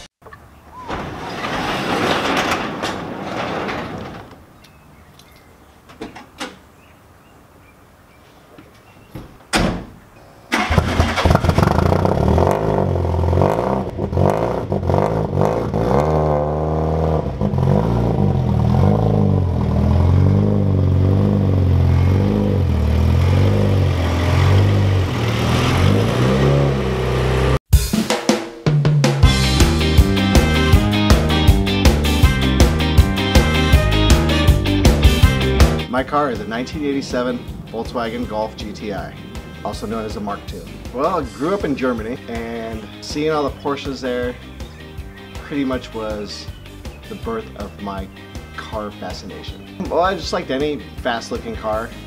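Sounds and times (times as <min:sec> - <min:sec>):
garage door opening: 0:00.2 - 0:06.7, 0:09.0 - 0:11.8
car engine cranking and running: 0:10.5 - 0:27.6.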